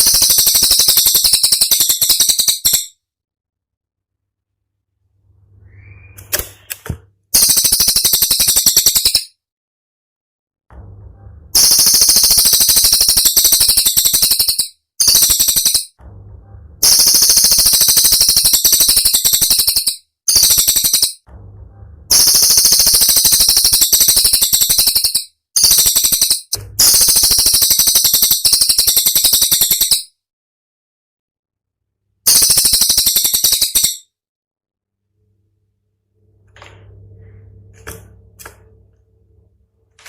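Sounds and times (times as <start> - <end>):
songbird rapid piercing notes: 0.0 - 2.9, 11.6 - 15.9, 16.8 - 21.2, 22.1 - 30.1, 32.3 - 34.0.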